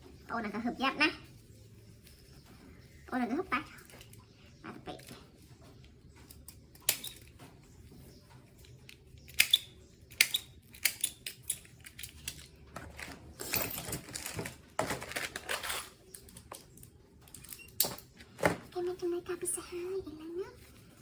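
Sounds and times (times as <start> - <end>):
small objects clicking and knocking: 8.6 - 18.6
rustling: 11.9 - 16.5.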